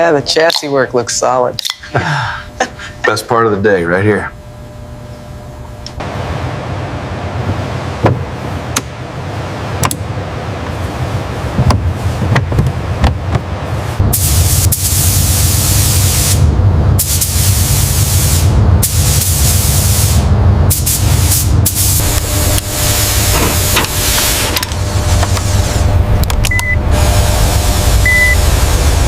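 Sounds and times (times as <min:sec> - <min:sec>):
steady low hum: 0:00.0 - 0:29.0
spray gun hissing: 0:13.8 - 0:16.4, 0:17.0 - 0:25.9.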